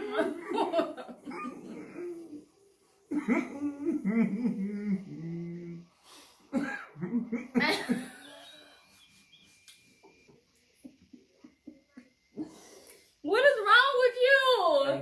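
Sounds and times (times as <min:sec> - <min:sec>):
laughter: 0:00.0 - 0:01.7, 0:07.0 - 0:08.6.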